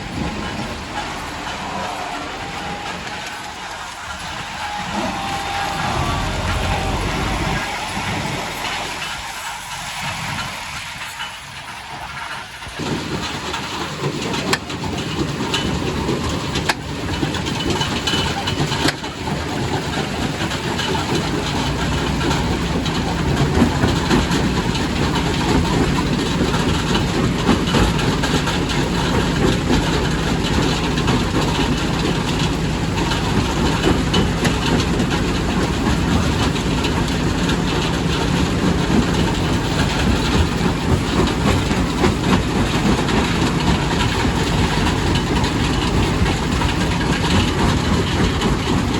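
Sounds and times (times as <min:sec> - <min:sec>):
heavy low rumble: 0:00.0 - 0:11.3.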